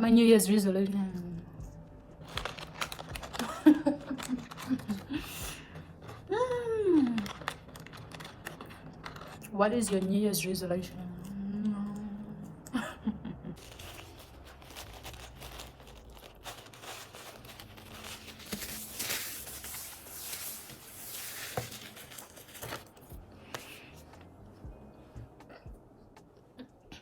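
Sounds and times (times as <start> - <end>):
rustling and crinkling handling: 2.2 - 10.2, 13.6 - 24.3.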